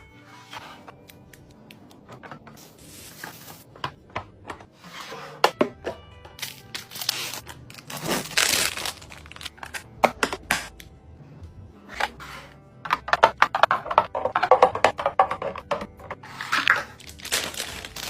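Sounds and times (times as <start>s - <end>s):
soft background music: 0.0s - 18.0s
plastic packaging crinkling: 6.4s - 9.8s, 17.0s - 18.0s
food containers clicking and knocking: 12.8s - 18.0s.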